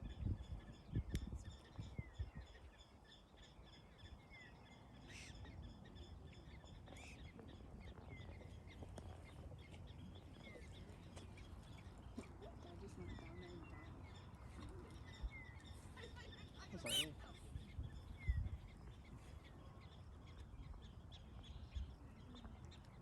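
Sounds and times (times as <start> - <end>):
small animals chirping: 16.8 - 17.2.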